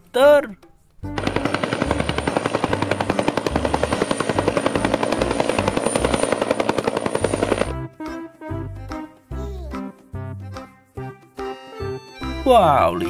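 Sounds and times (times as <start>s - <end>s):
helicopter rotor beating: 1.2s - 7.7s.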